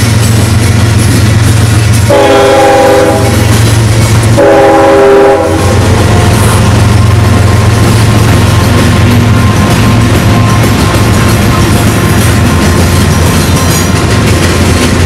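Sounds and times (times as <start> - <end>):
diesel locomotive engines: 0.0 - 15.0
train chord horn blasts: 2.0 - 3.5, 4.3 - 6.3.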